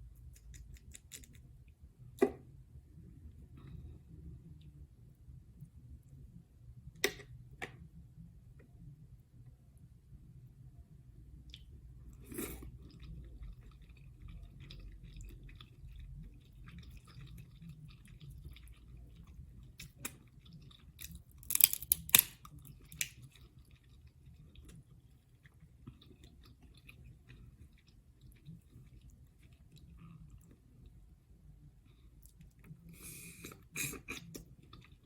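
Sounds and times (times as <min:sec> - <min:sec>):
chewing seafood: 0:11.5 - 0:35.0.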